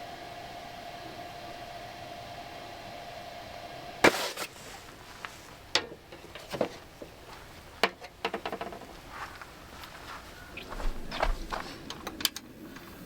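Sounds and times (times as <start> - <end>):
steady hum: 0.0 - 13.0
sharp clicks and knocks: 5.7 - 7.2, 7.8 - 9.0.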